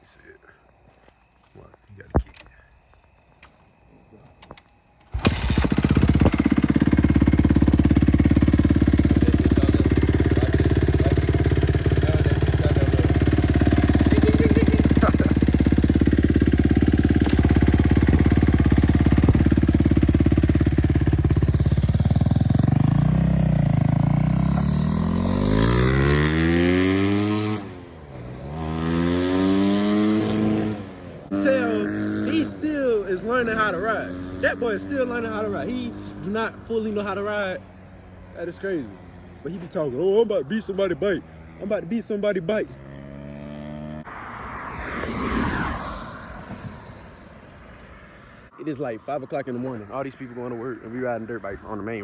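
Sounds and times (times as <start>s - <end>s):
dirt bike engine revving: 5.1s - 44.1s.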